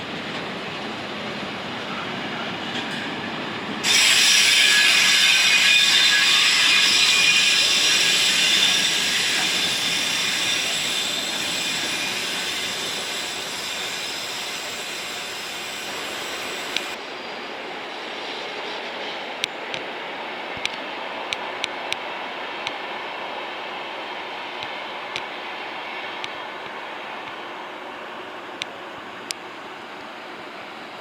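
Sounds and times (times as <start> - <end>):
train rolling noise: 0.0 - 31.0
train wheels squealing: 1.8 - 19.4.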